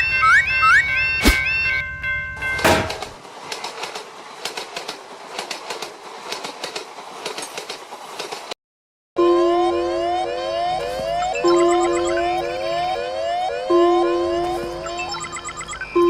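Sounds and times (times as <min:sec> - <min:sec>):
steady train rumble: 0:00.9 - 0:08.5
train wheels clicking over rail joints: 0:02.4 - 0:08.6
siren-like rising tone: 0:09.2 - 0:16.0.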